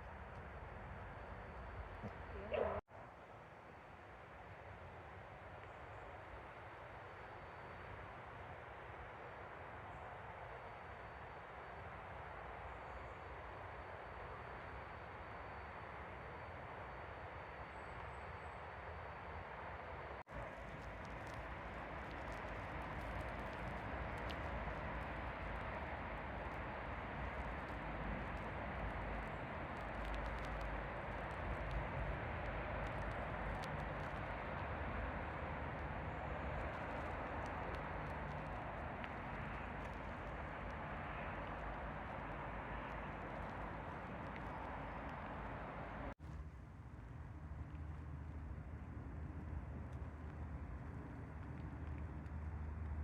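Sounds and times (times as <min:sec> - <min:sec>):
faint ticks: 0:20.4 - 0:45.6
faint small clicks: 0:20.6 - 0:32.1.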